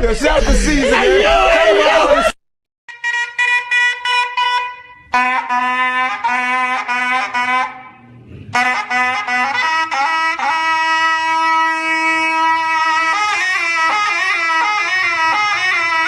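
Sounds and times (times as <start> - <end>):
trumpet playing: 2.9 - 16.0.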